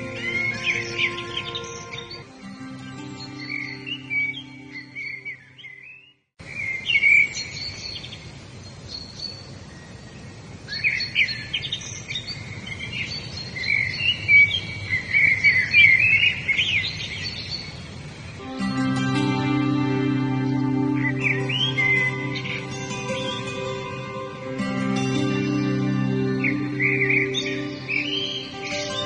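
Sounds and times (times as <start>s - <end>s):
soft instrumental music: 0.0s - 5.8s, 18.4s - 29.0s
birds singing: 0.0s - 29.0s
faint outdoor hiss: 0.0s - 29.0s.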